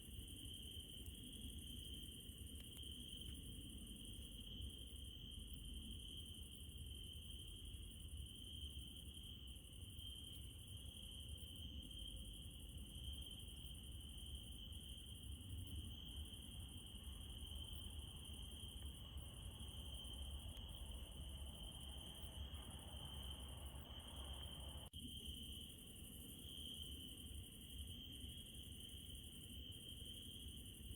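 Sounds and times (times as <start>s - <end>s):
crickets trilling: 0.0s - 30.9s
faint insect hiss: 0.0s - 30.9s.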